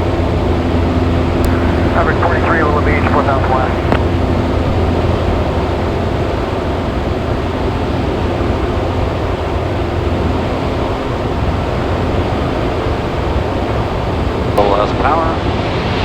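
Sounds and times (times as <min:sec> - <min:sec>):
propeller plane engine droning: 0:00.0 - 0:16.0
rushing airflow: 0:01.2 - 0:07.9.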